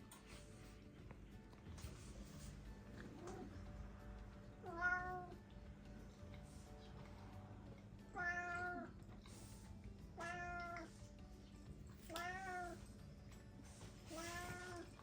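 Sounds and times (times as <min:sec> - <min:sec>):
cat meowing: 0:04.6 - 0:05.4, 0:08.1 - 0:09.0, 0:10.2 - 0:11.0, 0:12.1 - 0:12.8, 0:14.1 - 0:15.0.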